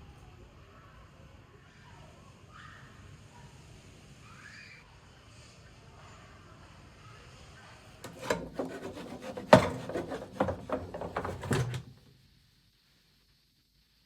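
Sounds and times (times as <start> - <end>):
scraping on wood: 8.1 - 12.0.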